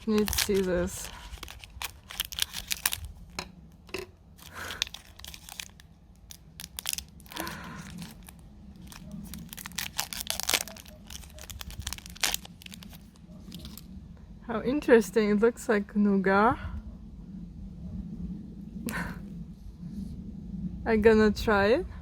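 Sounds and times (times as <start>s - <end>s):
plastic wrapper crinkling: 0.0s - 13.9s.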